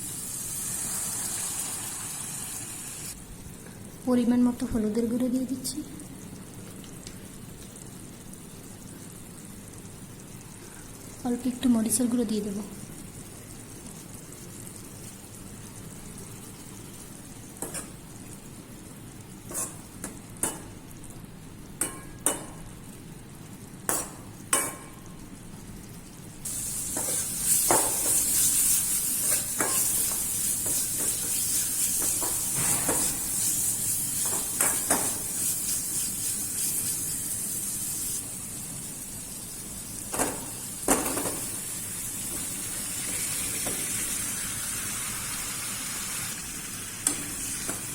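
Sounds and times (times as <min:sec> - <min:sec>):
food sizzling in hot oil: 0:00.0 - 0:47.9
metal spoon tapping pan: 0:17.6 - 0:18.0, 0:21.8 - 0:22.6, 0:23.9 - 0:25.0, 0:29.2 - 0:31.3.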